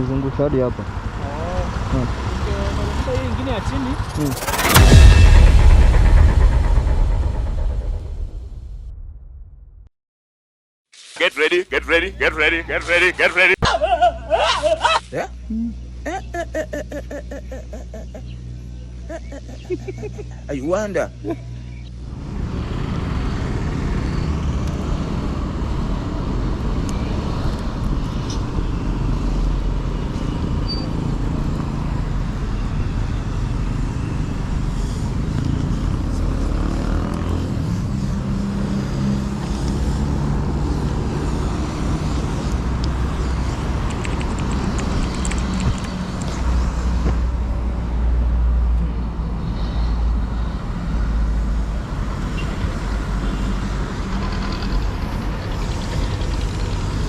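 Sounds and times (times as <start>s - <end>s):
traffic noise: 0.0s - 5.0s, 11.1s - 57.0s
wind: 0.0s - 9.4s, 10.9s - 57.0s
heavy low rumble: 2.0s - 9.9s.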